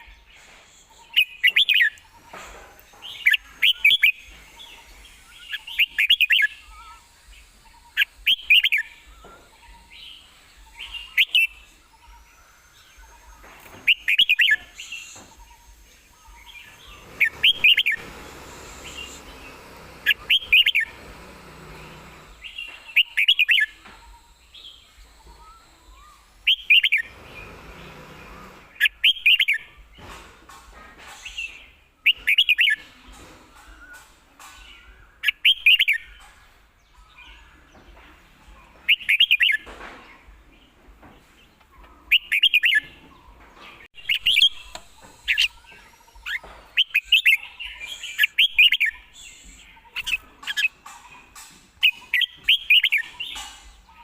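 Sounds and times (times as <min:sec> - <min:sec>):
bulbul singing: 0:00.0 - 0:30.1, 0:43.8 - 0:54.0.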